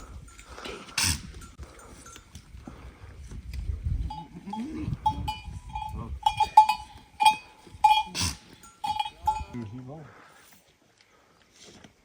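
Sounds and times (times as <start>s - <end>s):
livestock bell clanking: 0.0s - 2.4s, 4.1s - 9.8s.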